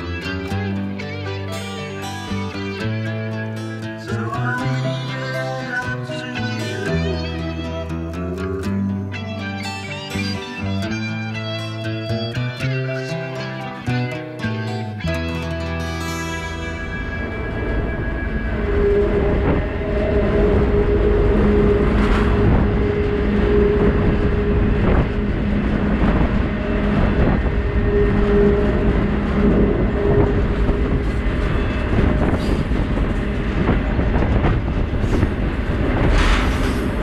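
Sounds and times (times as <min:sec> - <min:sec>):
pitched hum: 0:00.0 - 0:37.0
train wheels rumbling on track: 0:16.6 - 0:37.0.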